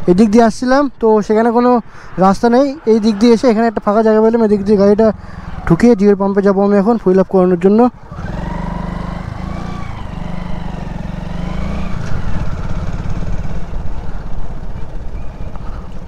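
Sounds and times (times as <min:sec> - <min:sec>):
motorcycle engine running: 0:08.0 - 0:16.0.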